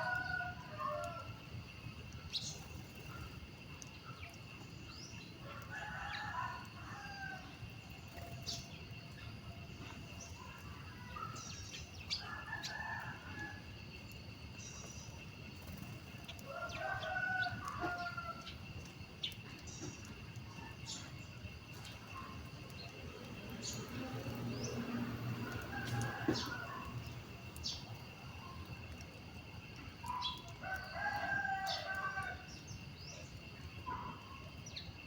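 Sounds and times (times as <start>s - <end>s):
roosters crowing: 0.0s - 1.4s, 5.5s - 7.6s, 16.4s - 18.6s, 23.2s - 28.1s, 30.3s - 32.7s.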